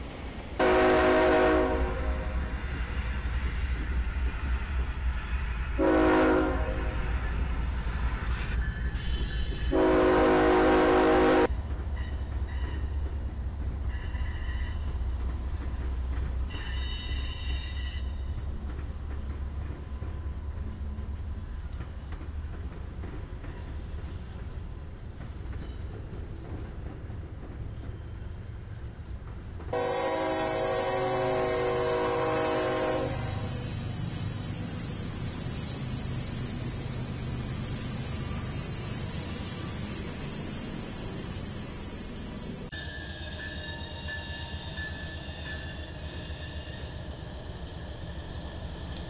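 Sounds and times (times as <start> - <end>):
freight train rumbling: 0.0 - 49.0
diesel locomotive horn blasts: 0.6 - 2.4, 5.8 - 7.0, 9.7 - 11.5, 29.7 - 33.6
wheels squealing: 33.1 - 48.6.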